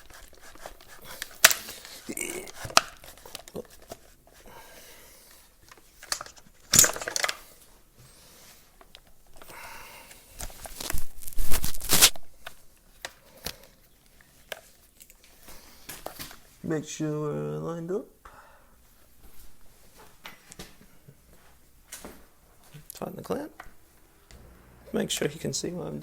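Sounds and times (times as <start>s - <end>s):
plastic parts scraping and clicking: 0.0s - 4.4s, 5.6s - 7.4s.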